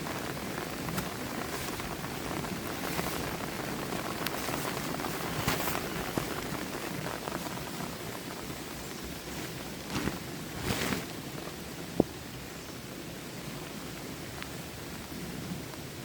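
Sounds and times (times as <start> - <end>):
raindrops ticking: 0.0 - 10.6
heavy rain: 0.0 - 16.0.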